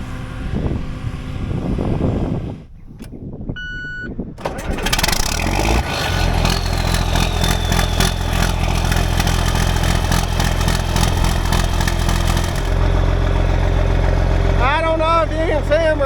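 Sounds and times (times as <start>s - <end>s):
diesel engine running: 0.0s - 2.9s, 4.4s - 16.0s
mechanical rattling: 4.4s - 12.8s.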